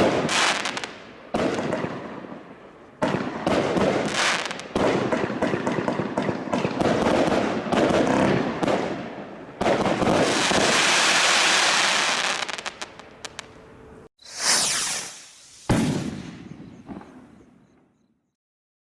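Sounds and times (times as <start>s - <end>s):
fireworks crackling and popping: 0.0s - 2.0s, 3.0s - 8.9s, 9.6s - 13.5s, 14.2s - 17.3s.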